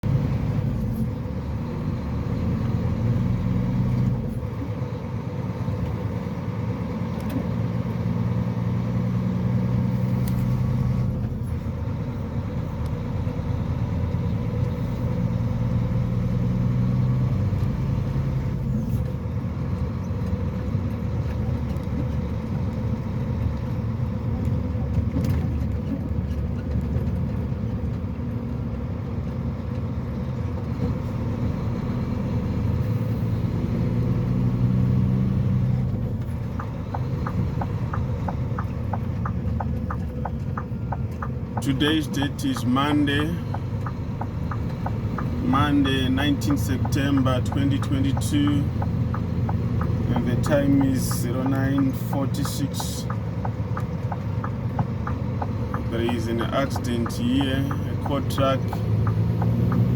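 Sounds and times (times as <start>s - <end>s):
road noise: 0.0s - 59.9s
vehicle engine running: 0.0s - 59.9s.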